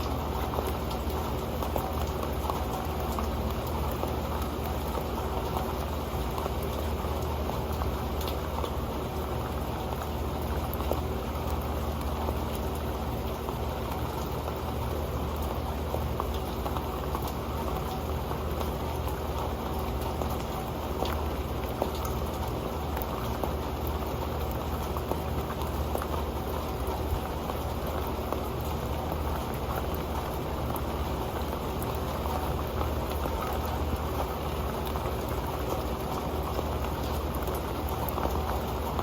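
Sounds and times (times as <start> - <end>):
rain ticking on a metal pan: 0.0 - 39.0.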